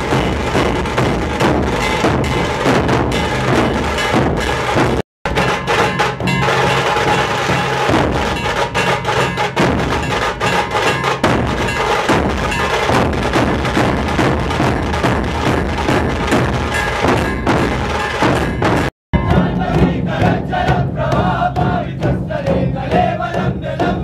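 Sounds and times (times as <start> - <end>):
group drumming fast: 0.0 - 24.0.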